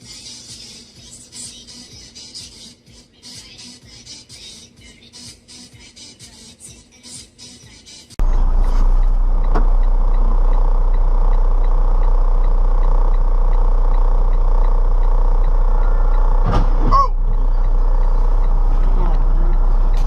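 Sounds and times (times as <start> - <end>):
faint regular ticking: 8.2 - 16.5, 17.1 - 20.0
car road and engine rumble: 8.2 - 20.0
wavering tone: 12.4 - 20.0.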